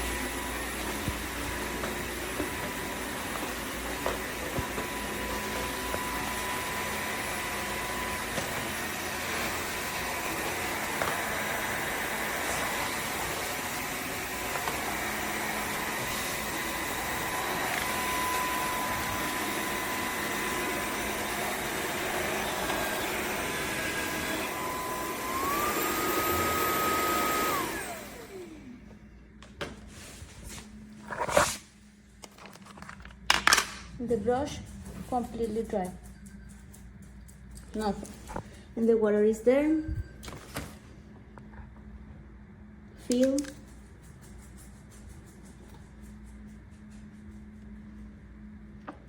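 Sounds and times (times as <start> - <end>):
vacuum mop motor whining: 0.0 - 29.5.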